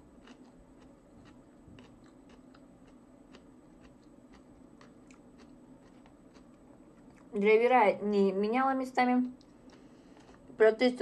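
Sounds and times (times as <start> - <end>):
faint chewing: 0.0 - 7.4, 9.3 - 10.6.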